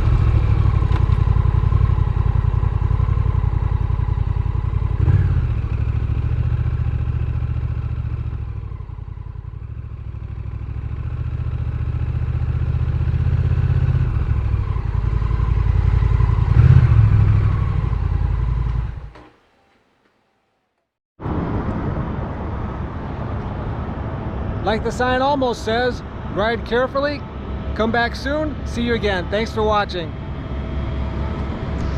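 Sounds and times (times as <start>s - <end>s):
motorcycle engine running: 0.0s - 20.0s
steady vehicle noise: 0.0s - 31.9s.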